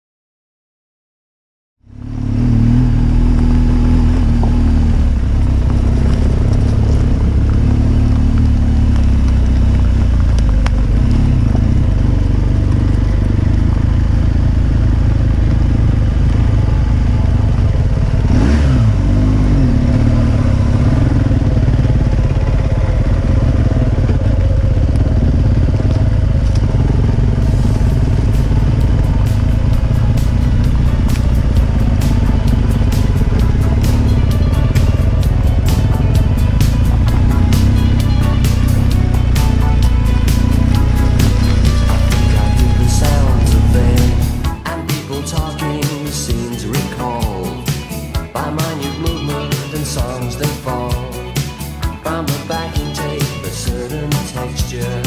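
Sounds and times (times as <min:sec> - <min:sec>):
wind and road noise: 0:01.8 - 0:44.9
motorcycle engine running: 0:01.8 - 0:55.0.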